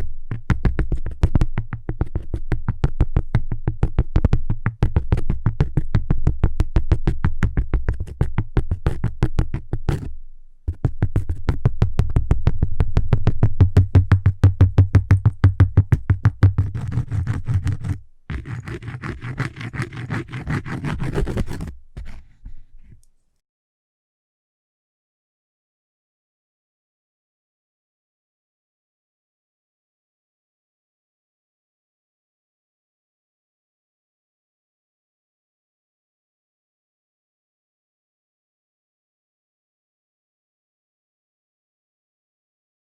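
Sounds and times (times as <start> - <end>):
rapid tapping on cork: 0.2 - 10.1, 10.7 - 23.0
scratchy strokes on cork: 14.7 - 23.1.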